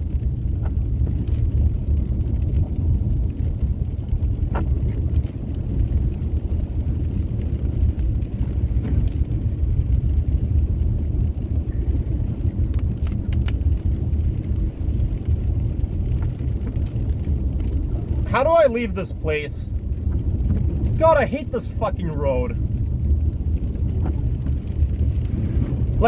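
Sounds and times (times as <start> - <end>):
car engine rumble in cabin: 0.0 - 26.0
faint clicks: 11.6 - 18.3.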